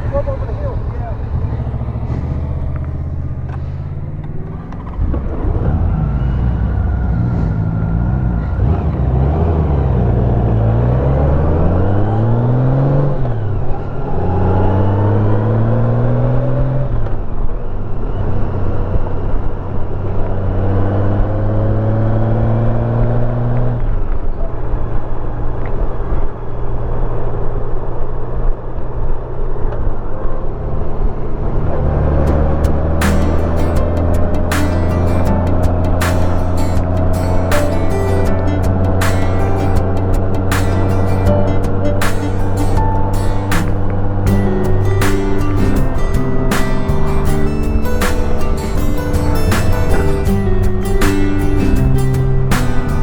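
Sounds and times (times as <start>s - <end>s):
motorcycle engine shifting gears: 0.0s - 17.2s, 31.3s - 53.0s.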